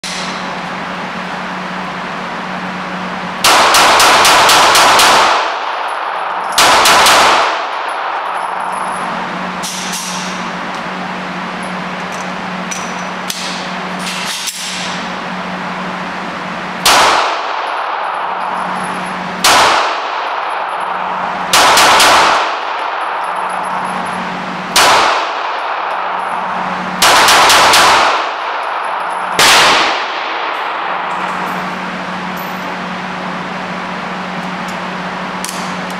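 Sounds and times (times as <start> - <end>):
steady low hum: 0.0 - 35.9
gunshots with metallic ringing: 3.4 - 9.0, 16.8 - 31.8.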